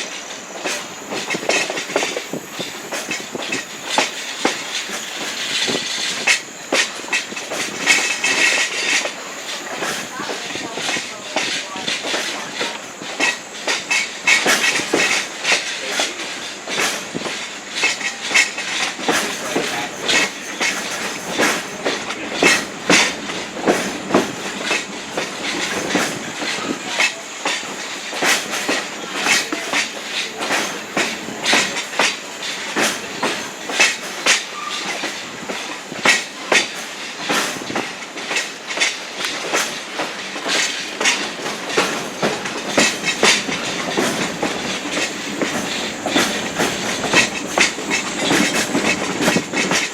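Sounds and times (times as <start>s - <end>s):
train coach rumbling: 0.0s - 49.9s
wheels clacking over rail joints: 0.0s - 49.9s.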